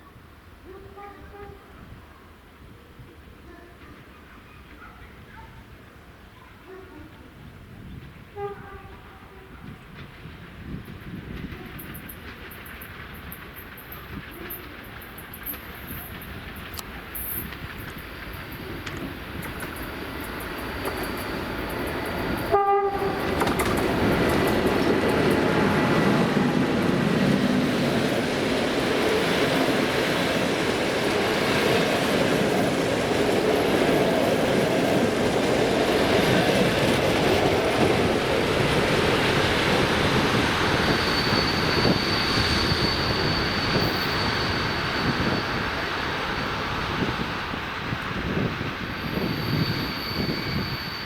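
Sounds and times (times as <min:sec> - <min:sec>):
train horn blast: 0:00.7 - 0:01.8, 0:08.3 - 0:09.7, 0:22.4 - 0:23.5
train wheels rumbling over rails: 0:07.2 - 0:50.8
high squeal: 0:19.4 - 0:27.4, 0:36.1 - 0:51.0.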